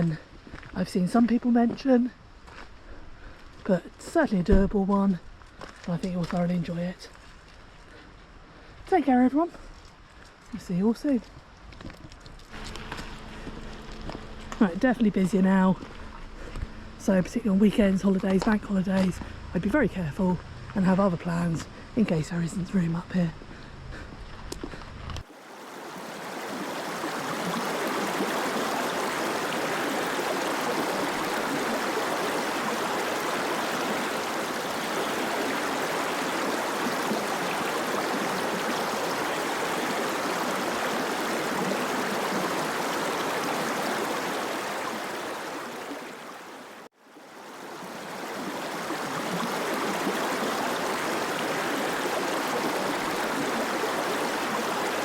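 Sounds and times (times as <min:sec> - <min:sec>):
mountain stream rushing: 0:12.4 - 0:22.5, 0:25.2 - 0:55.0.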